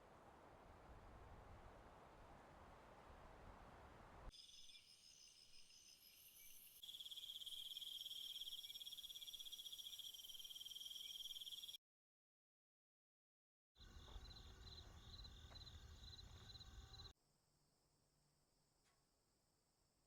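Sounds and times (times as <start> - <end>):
insects trilling: 4.4 - 11.8, 13.8 - 17.1
shrill pulsing insect trill: 4.4 - 11.8, 13.8 - 17.1.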